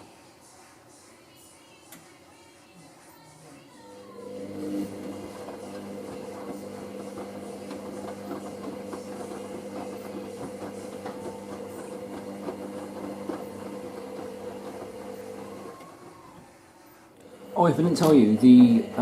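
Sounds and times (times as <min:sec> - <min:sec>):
washing machine motor hum: 0:03.8 - 0:19.0.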